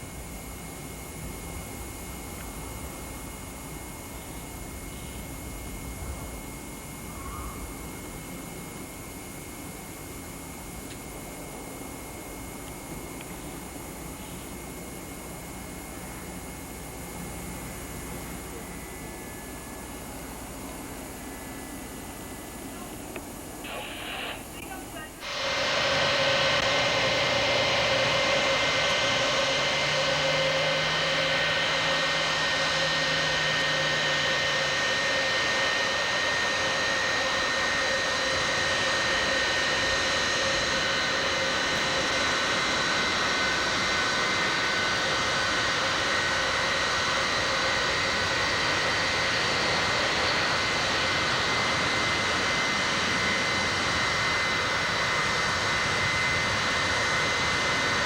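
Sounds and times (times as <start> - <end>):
jet engines roaring: 12.6 - 58.0
high whining tones: 23.6 - 54.6.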